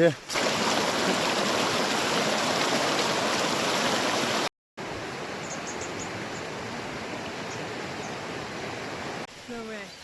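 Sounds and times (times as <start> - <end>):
stream water rushing: 0.2 - 5.4.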